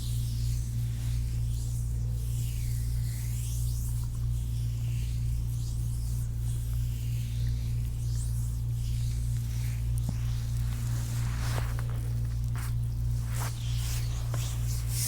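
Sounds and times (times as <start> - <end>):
steady low hum: 0.0 - 15.0
hands swishing over skin: 9.6 - 15.0.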